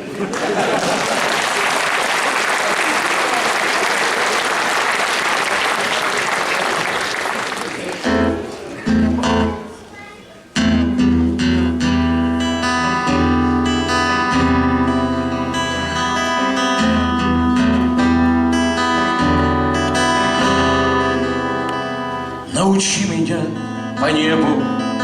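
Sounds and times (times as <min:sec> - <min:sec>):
acoustic guitar chords: 0:08.0 - 0:25.0.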